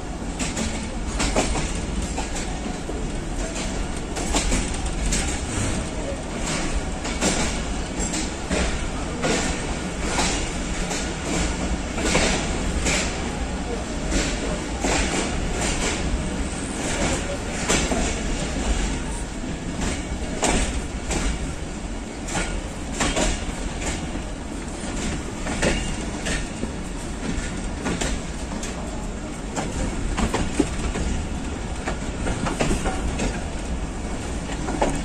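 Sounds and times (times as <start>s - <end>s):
train coach rumbling: 0.0s - 35.0s
wheels clacking on rails: 0.0s - 35.0s.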